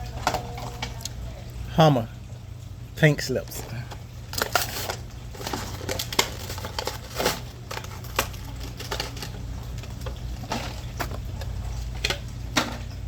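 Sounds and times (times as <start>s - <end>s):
plastic crinkling: 3.4s - 13.0s.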